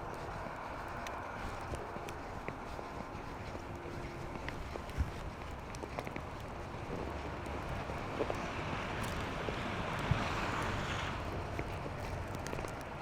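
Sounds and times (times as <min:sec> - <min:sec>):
traffic noise: 0:00.0 - 0:13.0
wind: 0:00.0 - 0:13.0.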